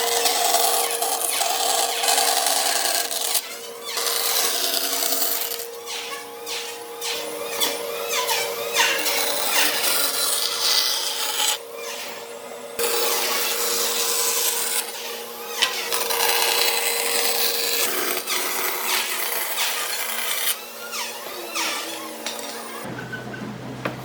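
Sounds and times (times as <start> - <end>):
power tool sanding wood: 0.0 - 24.0.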